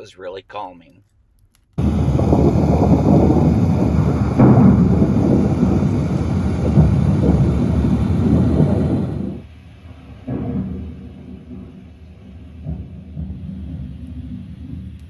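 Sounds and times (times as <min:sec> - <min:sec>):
rain: 0:01.8 - 0:15.0
rolling thunder: 0:01.8 - 0:15.0.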